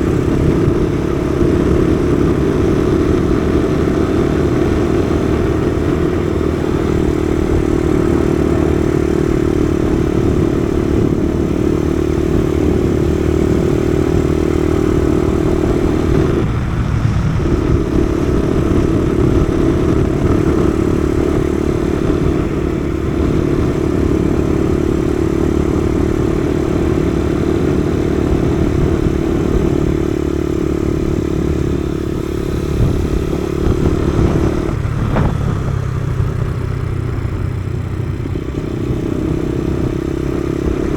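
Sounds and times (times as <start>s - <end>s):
wind rushing past: 0.0s - 24.6s
motorcycle engine running: 0.0s - 40.9s.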